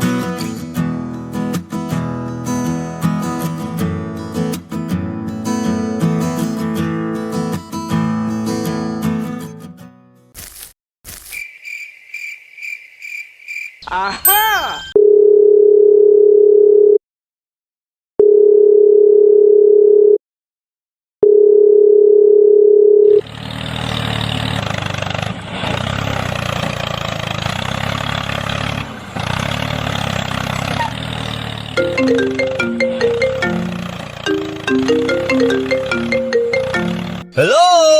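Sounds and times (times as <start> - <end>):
short high beeps: 14.2 - 15.0.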